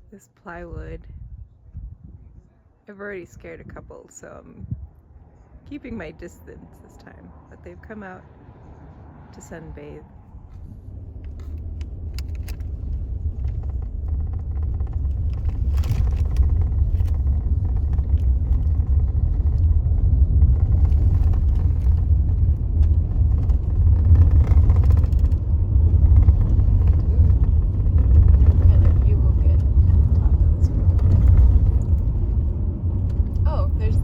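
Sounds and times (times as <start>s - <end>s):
car road and engine rumble: 0.0s - 34.0s
light clicks and rattles: 11.2s - 34.0s.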